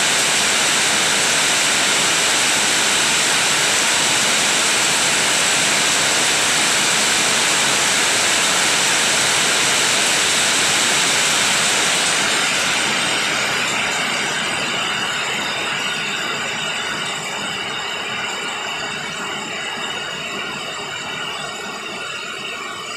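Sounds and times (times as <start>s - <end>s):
heavy rain: 0.0s - 14.0s.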